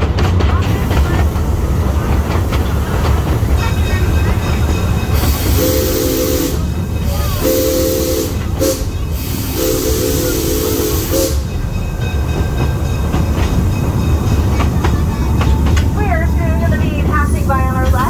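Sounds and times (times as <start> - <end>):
train rumbling: 0.0 - 18.0
steam locomotive whistle blasts: 5.1 - 11.6.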